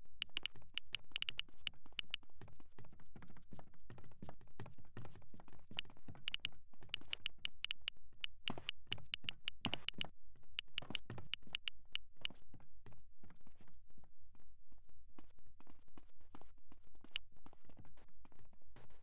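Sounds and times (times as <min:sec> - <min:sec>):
sharp high clicks: 0:00.0 - 0:02.2, 0:06.3 - 0:12.3
steady rhythmic tapping: 0:06.2 - 0:10.0, 0:10.6 - 0:12.2.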